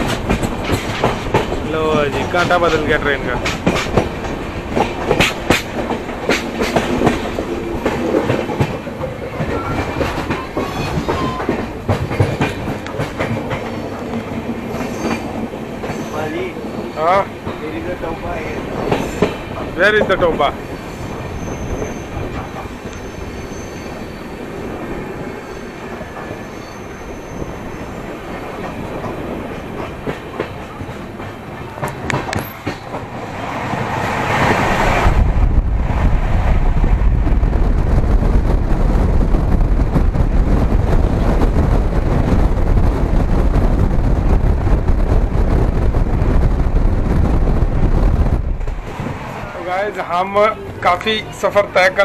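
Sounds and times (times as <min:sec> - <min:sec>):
train wheels clattering: 0:00.0 - 0:35.1
rush of air and rumble: 0:32.0 - 0:50.0.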